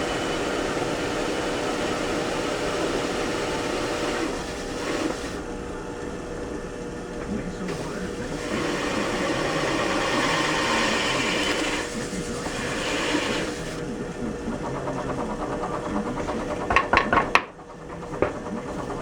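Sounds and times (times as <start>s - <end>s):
power tool motor hum: 0.0s - 5.5s, 7.7s - 13.9s
sharp knocks: 15.9s - 19.0s.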